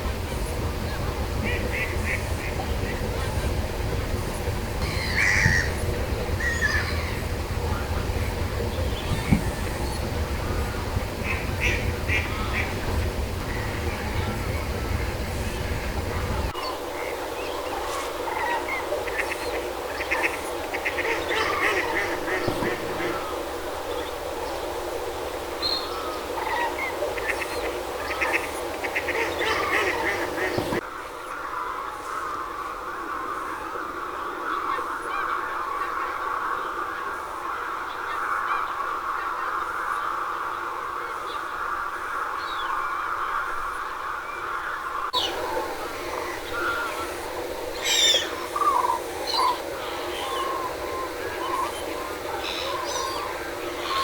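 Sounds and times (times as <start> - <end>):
bird calls: 0.0 - 30.8, 44.3 - 54.0
ducks quacking: 0.0 - 30.8, 45.2 - 54.0
geese honking: 0.0 - 30.8, 45.2 - 54.0
water rushing through sluice: 0.0 - 30.9, 45.2 - 54.0.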